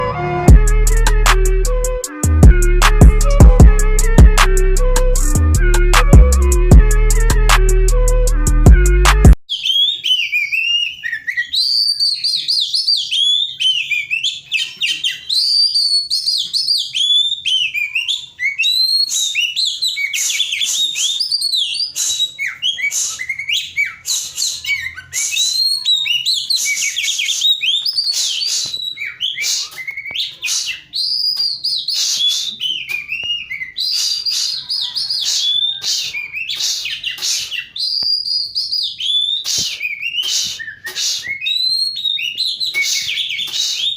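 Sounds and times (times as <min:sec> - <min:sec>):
bird singing whistles and chatter: 0:09.5 - 0:43.9.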